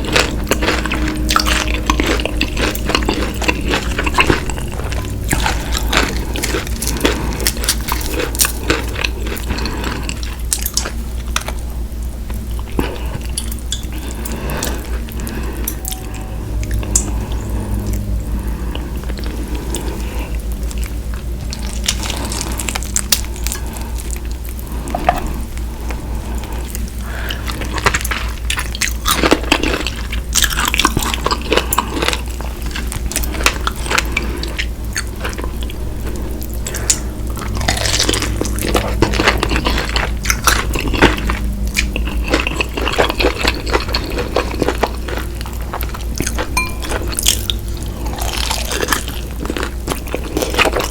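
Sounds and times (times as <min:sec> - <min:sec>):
crunchy chewing: 0:00.0 - 0:50.9
steady low hum: 0:00.0 - 0:50.9.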